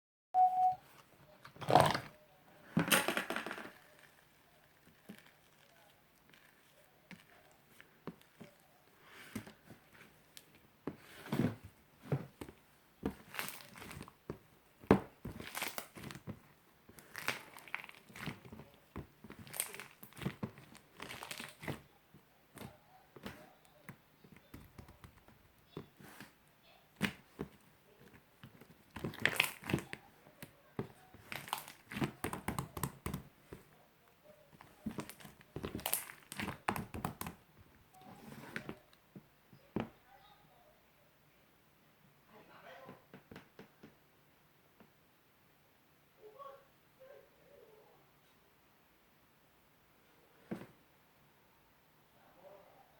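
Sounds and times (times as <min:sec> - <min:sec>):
slime squelching and crackling: 0:03.7 - 0:11.5, 0:12.3 - 0:21.9, 0:22.5 - 0:33.7, 0:34.5 - 0:37.5.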